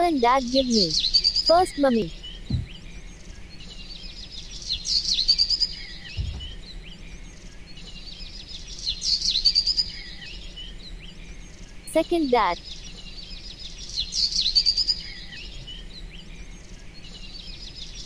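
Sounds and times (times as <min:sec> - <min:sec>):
birds chirping: 0:00.0 - 0:18.0
soft low thuds: 0:02.4 - 0:02.9, 0:06.1 - 0:07.0.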